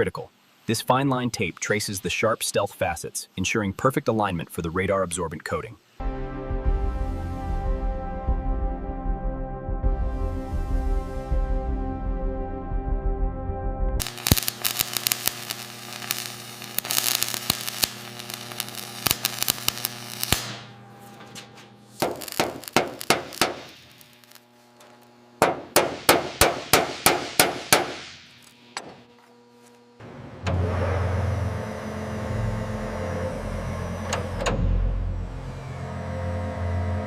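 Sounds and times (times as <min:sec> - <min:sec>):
faint steady hum: 0:00.0 - 0:06.0, 0:14.0 - 0:35.8.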